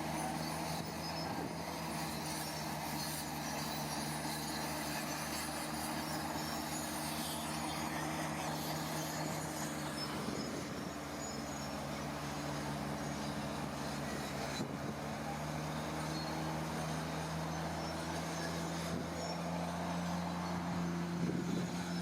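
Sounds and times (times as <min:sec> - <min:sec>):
heavy machinery diesel engine running: 0:00.0 - 0:22.0.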